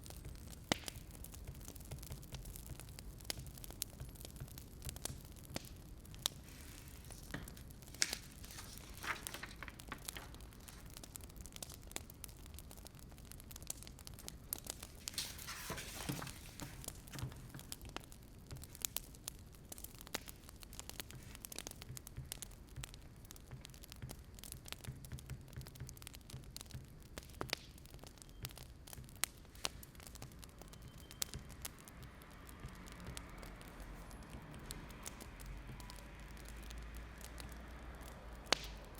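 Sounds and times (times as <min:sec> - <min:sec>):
wood fire crackling: 0:00.0 - 0:38.9
rustling crinkling: 0:06.0 - 0:11.5, 0:14.1 - 0:18.0.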